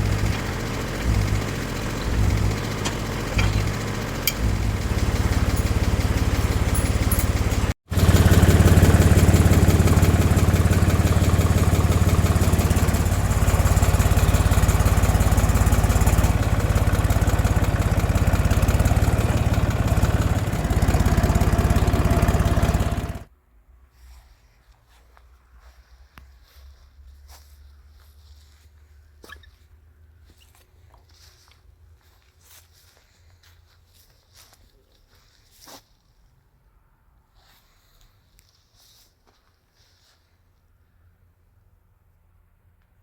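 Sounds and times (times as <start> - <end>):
tractor diesel engine chugging: 0.0 - 23.3.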